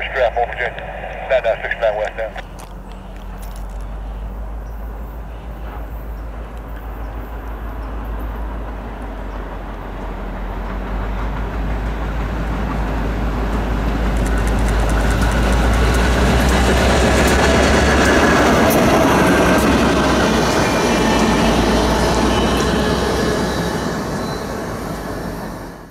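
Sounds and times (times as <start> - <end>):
diesel locomotive drone: 0.0 - 25.9
train wheels clicking on rails: 5.6 - 25.4.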